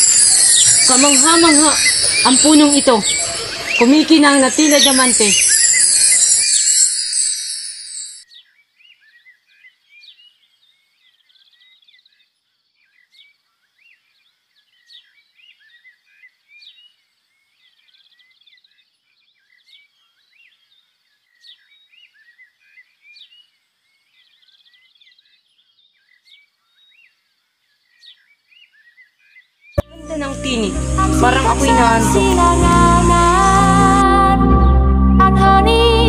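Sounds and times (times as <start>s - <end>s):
small birds chirping: 0.0s - 33.6s
steady high hiss: 29.9s - 34.1s.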